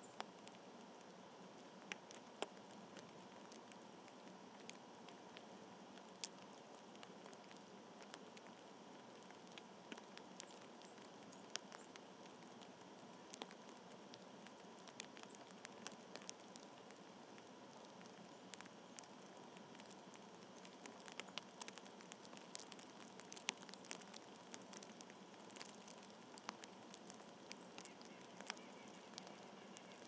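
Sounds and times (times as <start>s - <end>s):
faint steady hiss: 0.0s - 30.0s
small irregular clicks and taps: 0.1s - 30.0s.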